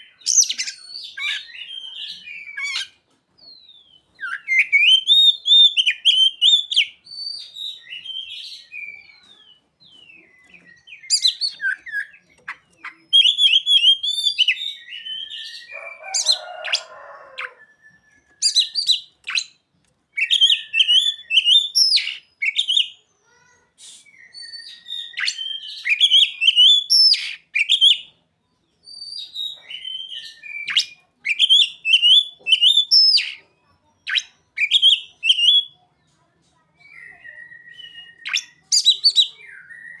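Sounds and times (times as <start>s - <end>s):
bird singing chirped whistled phrases: 0.0s - 35.8s, 36.8s - 40.0s.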